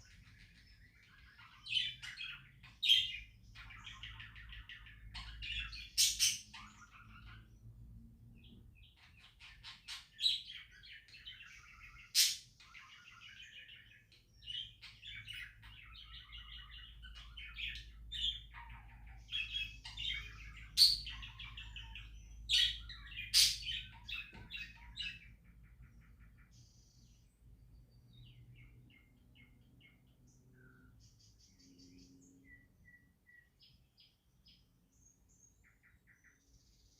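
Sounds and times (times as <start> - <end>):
budgerigars chirping and warbling: 0.0 - 36.9
sharp loud bird calls: 14.4 - 27.2.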